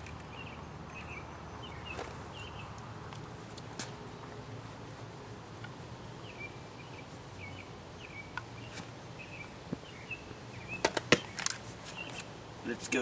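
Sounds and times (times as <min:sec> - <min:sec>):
bird chirping: 0:00.0 - 0:02.9, 0:06.0 - 0:12.4.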